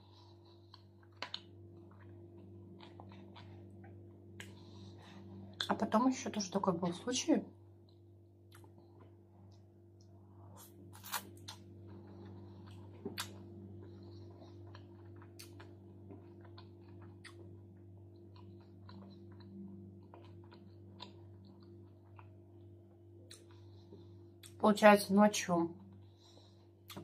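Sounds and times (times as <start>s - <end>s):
mouth chewing salad: 0.0s - 5.8s, 10.5s - 22.4s, 23.2s - 23.8s
low steady hum: 0.0s - 27.0s.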